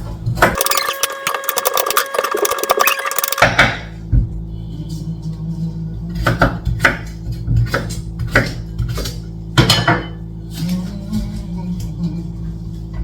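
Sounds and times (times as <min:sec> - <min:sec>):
knife chopping on board: 0:06.2 - 0:10.1.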